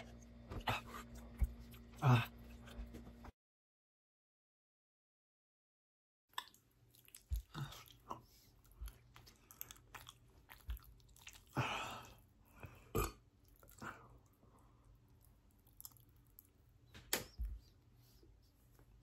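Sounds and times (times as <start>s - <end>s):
wet mouth sounds: 6.3s - 11.6s
person chewing chocolate: 6.3s - 16.7s.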